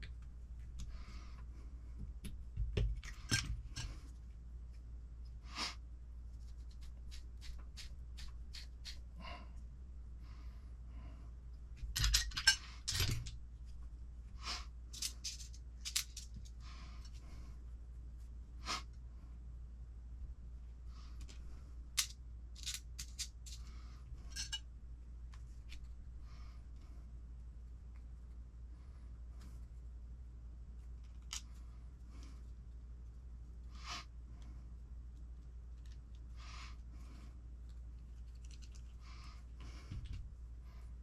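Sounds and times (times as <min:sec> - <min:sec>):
small metal parts clicking: 0:11.8 - 0:13.4, 0:14.9 - 0:17.2, 0:22.0 - 0:23.7, 0:24.3 - 0:24.6
metal parts clattering: 0:11.9 - 0:13.3, 0:15.0 - 0:16.4, 0:22.0 - 0:23.6, 0:24.3 - 0:24.6.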